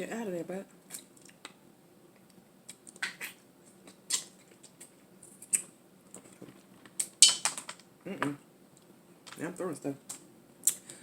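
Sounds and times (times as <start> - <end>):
crab shell cracking: 2.7 - 5.7.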